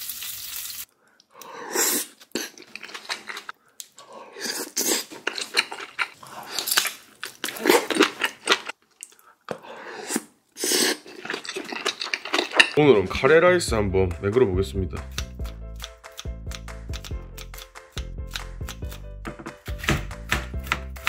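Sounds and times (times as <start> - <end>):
chewing and crunching food: 2.2 - 9.4, 10.9 - 12.8.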